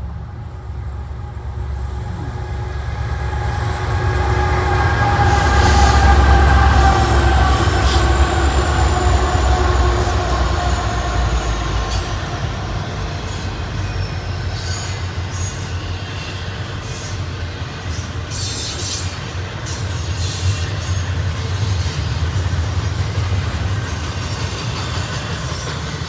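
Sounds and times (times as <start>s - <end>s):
diesel locomotive rumble: 0.0s - 26.0s
high wheel squeal: 0.8s - 17.3s
train wheel clicks: 19.7s - 26.0s.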